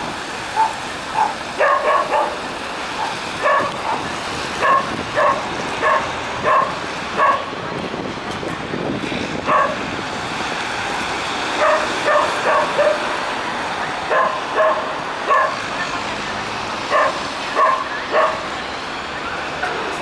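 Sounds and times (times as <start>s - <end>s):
steady background noise: 0.0s - 20.0s
dogs barking: 0.5s - 7.6s, 9.4s - 9.8s, 11.6s - 13.2s, 14.1s - 15.6s, 16.9s - 18.5s.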